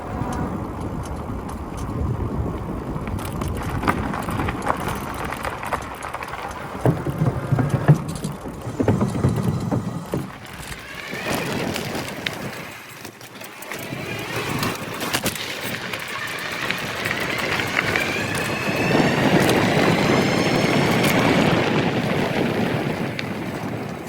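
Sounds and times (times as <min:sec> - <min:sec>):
bike rattling over rough ground: 0:00.0 - 0:24.0
electric motor whine: 0:08.5 - 0:23.4.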